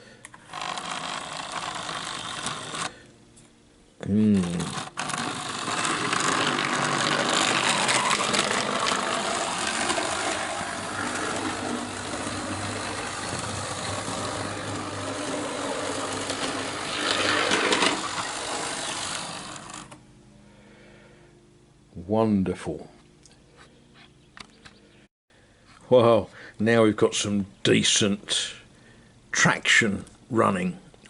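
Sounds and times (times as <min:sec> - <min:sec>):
model train electric motor hum: 0:00.3 - 0:03.1, 0:04.2 - 0:20.0
model train wheels rumbling on rails: 0:00.5 - 0:02.9, 0:04.4 - 0:20.0.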